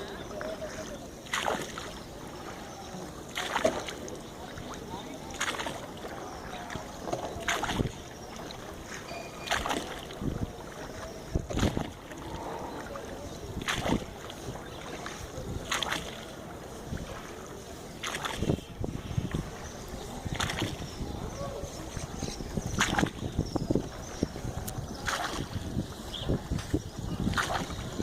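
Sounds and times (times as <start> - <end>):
oars splashing and knocking: 0.0 - 28.0
water washing: 0.0 - 28.0
wind: 0.0 - 28.0.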